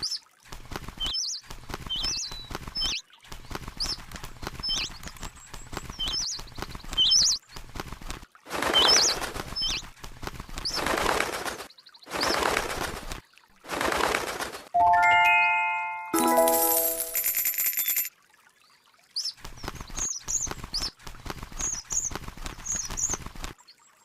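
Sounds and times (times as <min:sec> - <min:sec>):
wings flapping: 0:00.5 - 0:14.7, 0:19.4 - 0:23.6
small bird chirping: 0:01.0 - 0:03.0, 0:03.8 - 0:07.4, 0:19.2 - 0:23.3.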